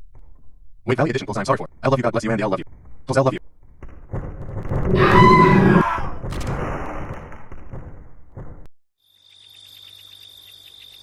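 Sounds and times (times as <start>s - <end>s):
insect chirping trill: 9.0s - 11.0s.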